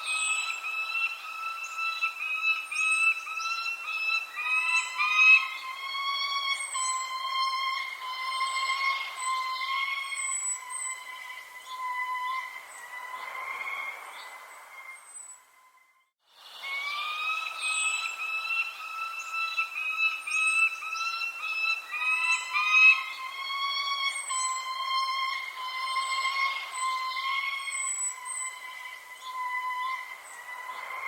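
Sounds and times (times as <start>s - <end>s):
small birds chirping: 0.0s - 31.0s
steady whistle-like tone: 0.0s - 31.0s.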